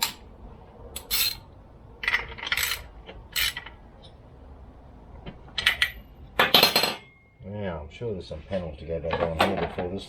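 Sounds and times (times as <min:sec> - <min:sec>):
metal tools clinking and rattling: 0:00.0 - 0:00.2, 0:01.0 - 0:03.8.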